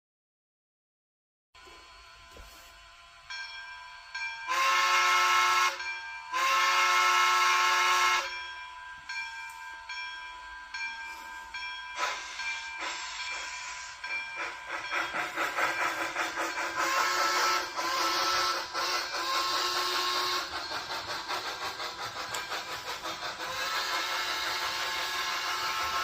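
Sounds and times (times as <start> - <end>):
steam hissing: 1.6 - 26.0
locomotive chuffing: 1.8 - 26.0
steam locomotive whistle blasts: 4.2 - 8.4, 11.1 - 26.0.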